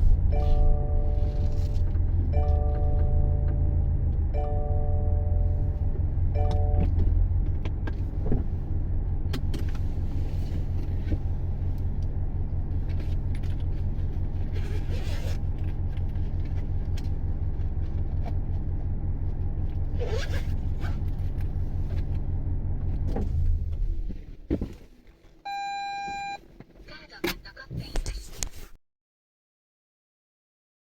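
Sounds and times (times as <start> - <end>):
pulsing rumbling drone: 0.0 - 24.4.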